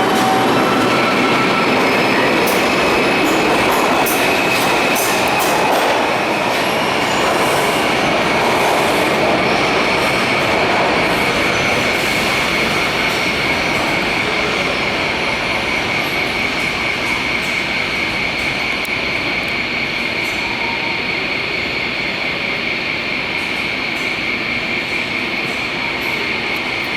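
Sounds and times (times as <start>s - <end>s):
subway train rumbling on rails: 0.0s - 26.9s.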